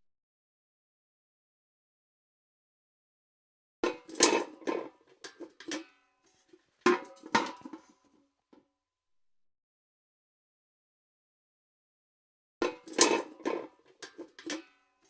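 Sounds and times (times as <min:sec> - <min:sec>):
metal bucket clanking: 0:03.8 - 0:08.0, 0:12.6 - 0:14.8.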